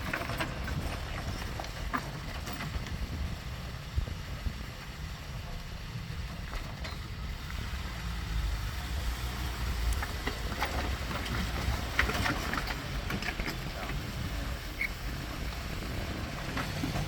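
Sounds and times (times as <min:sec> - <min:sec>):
engine rumbling at low revs: 0:00.0 - 0:17.0
rocks clicking and crunching: 0:09.9 - 0:14.6.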